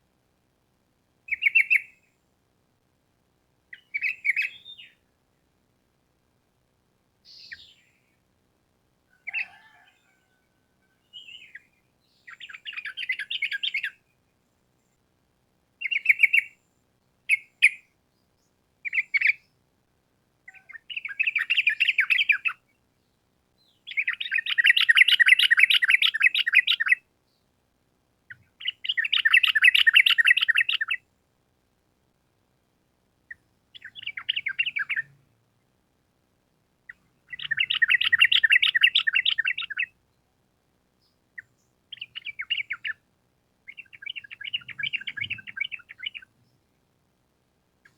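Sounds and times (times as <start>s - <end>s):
bulbul chirps and trills: 23.7s - 27.0s, 28.3s - 31.0s, 33.3s - 35.2s, 36.9s - 40.0s, 41.0s - 43.0s, 43.7s - 46.4s.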